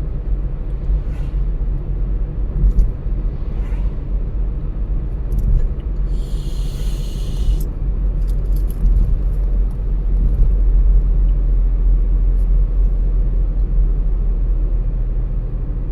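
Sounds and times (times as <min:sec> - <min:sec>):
car engine and tyre rumble: 0:00.0 - 0:15.9
brief hiss: 0:06.1 - 0:07.7.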